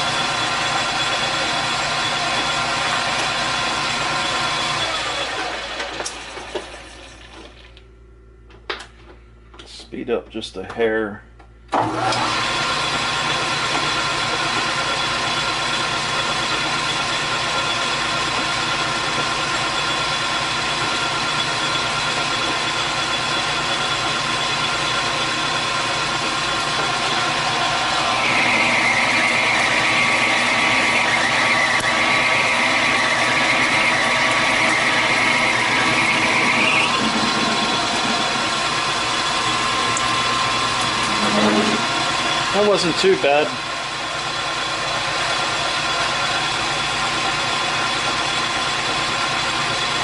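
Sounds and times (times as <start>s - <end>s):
metal lathe humming: 0.0s - 7.4s, 11.7s - 50.0s
high-pitched cutting whine: 19.7s - 48.6s.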